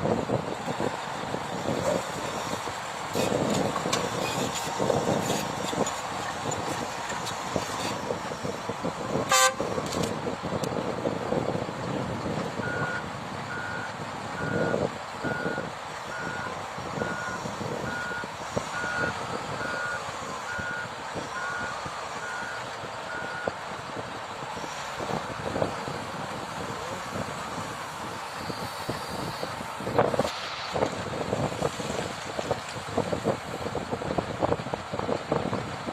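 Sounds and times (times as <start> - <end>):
heavy construction vehicle running: 0.0 - 35.9
reversing alarm beeping: 12.6 - 23.6.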